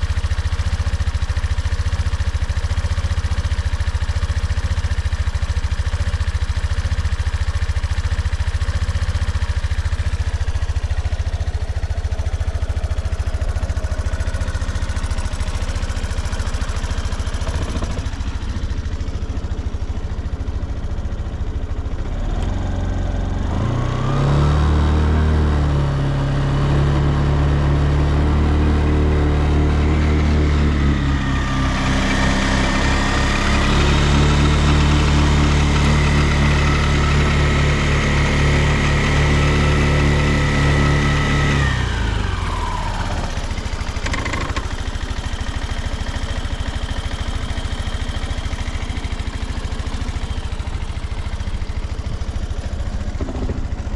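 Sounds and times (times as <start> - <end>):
scooter engine idling and revving: 0.0 - 53.9.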